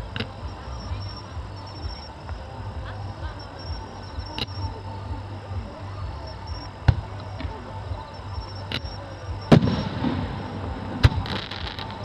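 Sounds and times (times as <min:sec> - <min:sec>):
fireworks bursting: 0:08.8 - 0:12.0
fireworks crackling: 0:08.8 - 0:12.0
booming with echoing rumble: 0:09.5 - 0:12.0.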